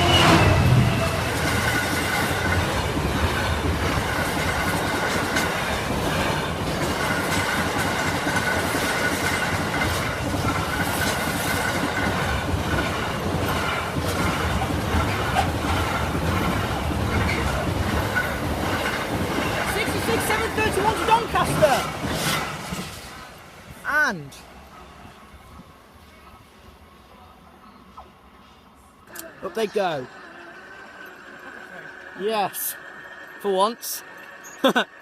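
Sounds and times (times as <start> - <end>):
train wheels rumbling over rails: 0.0 - 23.8.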